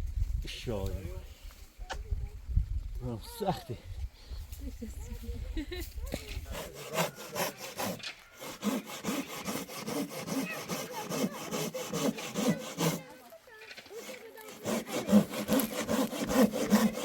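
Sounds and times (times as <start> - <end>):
rhythmic rasping strokes: 6.5 - 13.3, 13.9 - 17.0.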